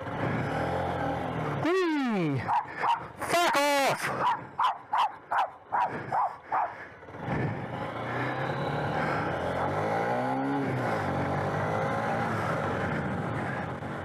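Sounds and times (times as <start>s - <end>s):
small engine revving: 0.0s - 3.2s, 4.2s - 14.0s
dog barking: 2.4s - 3.1s, 4.1s - 6.8s.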